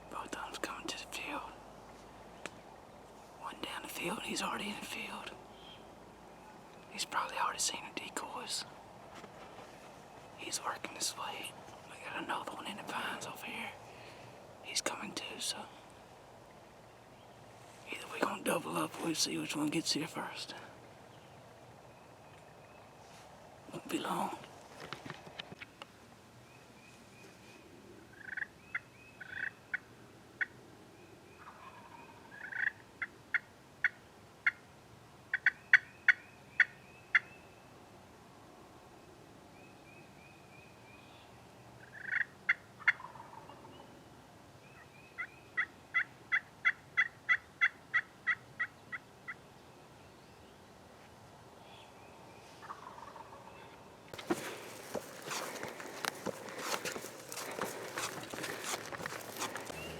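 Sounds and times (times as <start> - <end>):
short sharp turkey calls: 28.2 - 30.6, 31.4 - 34.6, 35.3 - 37.3, 41.8 - 43.4, 52.6 - 53.4
turkeys gobbling: 42.0 - 43.4, 52.6 - 53.4, 54.2 - 59.9.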